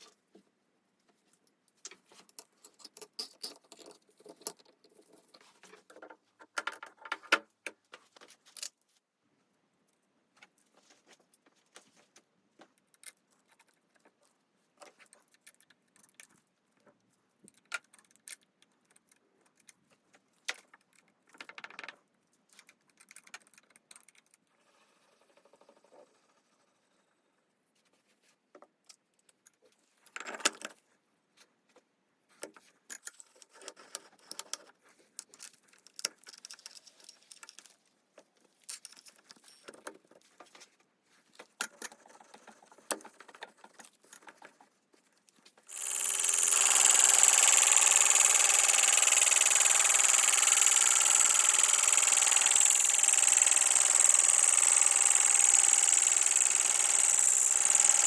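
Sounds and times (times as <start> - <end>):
lathe running with high whine: 45.7 - 58.0
metal parts clicking and knocking: 45.7 - 58.0.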